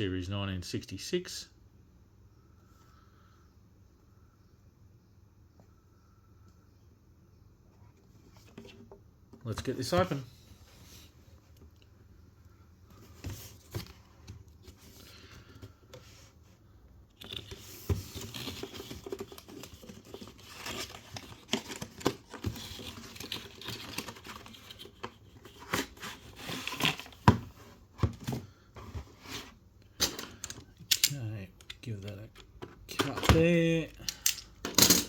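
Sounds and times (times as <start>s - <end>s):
clicks of handling: 30.0s - 33.3s.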